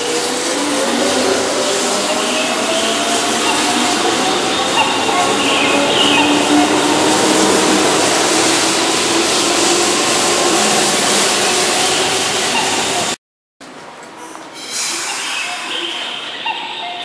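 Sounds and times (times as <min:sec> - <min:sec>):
station ambience: 0:00.0 - 0:13.2, 0:14.0 - 0:17.0
train wheels rushing on rails: 0:00.0 - 0:13.2.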